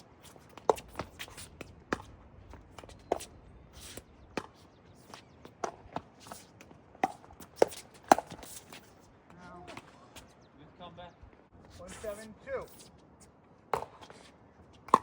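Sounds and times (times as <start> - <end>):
ball bouncing on court: 1.9 - 2.1.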